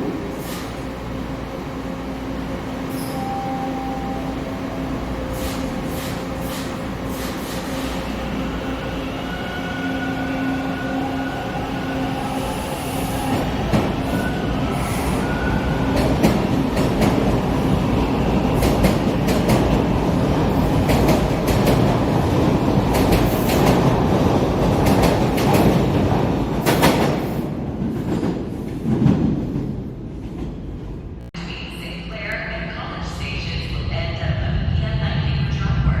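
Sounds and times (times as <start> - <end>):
subway train motor whine: 0.0 - 23.4
train wheels rumbling: 0.0 - 31.2.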